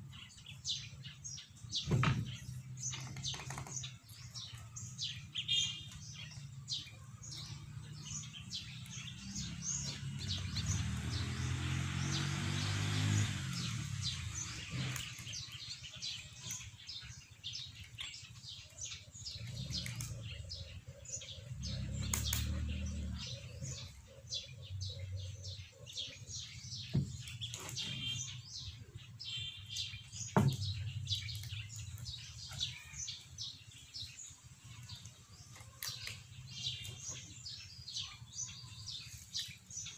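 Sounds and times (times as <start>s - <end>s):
small birds chirping: 0.0s - 39.9s
sharp knocks: 1.8s - 2.4s, 30.3s - 30.9s.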